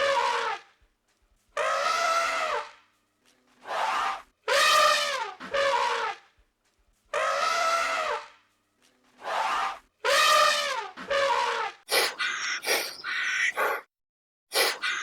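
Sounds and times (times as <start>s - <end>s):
animal brassy calls: 9.2s - 13.8s.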